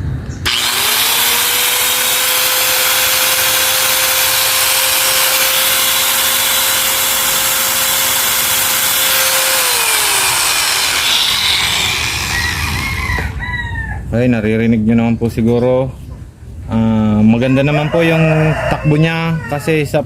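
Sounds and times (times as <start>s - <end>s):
angle grinder motor whine: 0.4s - 13.4s.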